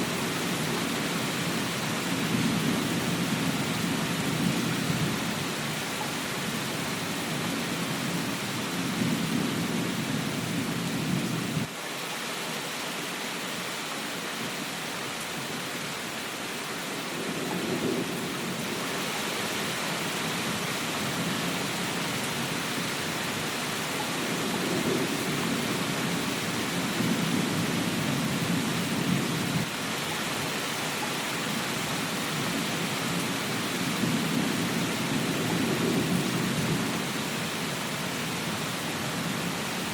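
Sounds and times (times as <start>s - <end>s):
rain hiss: 0.0s - 39.9s
thunder rumbling: 17.1s - 22.5s, 23.3s - 29.7s, 32.3s - 37.6s.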